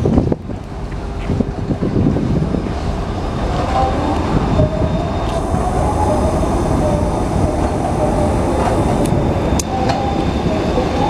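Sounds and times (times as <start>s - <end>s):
train rumbling on rails: 0.0s - 11.0s
high wavering squeal: 2.3s - 11.0s.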